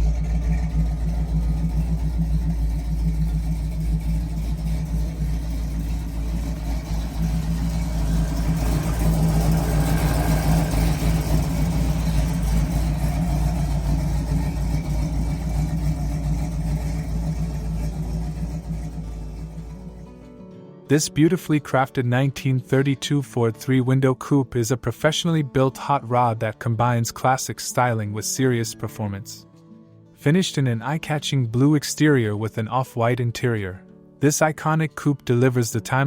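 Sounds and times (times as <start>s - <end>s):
car engine rumbling: 0.0s - 20.4s.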